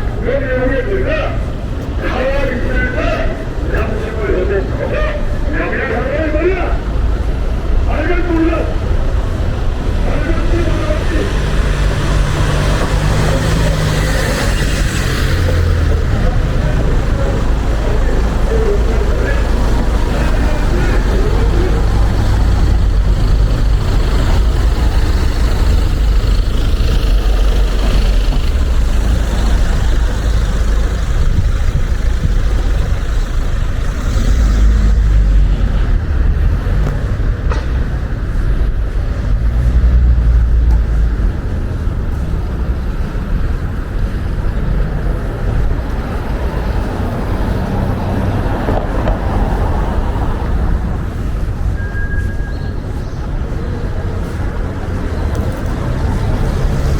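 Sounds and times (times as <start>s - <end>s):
wind buffeting microphone: 11.8s - 34.0s.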